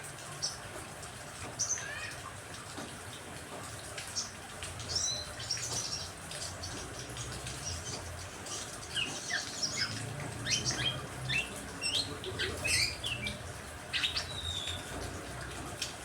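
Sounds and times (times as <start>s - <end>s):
songbirds chirping: 4.0s - 16.0s
rain hissing: 4.8s - 16.0s.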